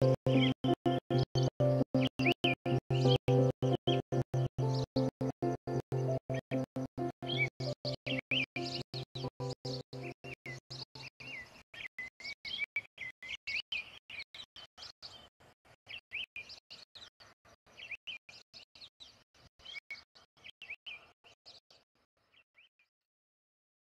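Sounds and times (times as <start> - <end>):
small bird chirping: 7.3 - 15.3.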